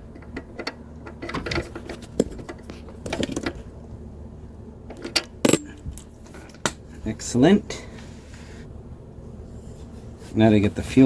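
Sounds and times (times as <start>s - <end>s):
wrench clinking on metal bolt: 5.0s - 5.8s.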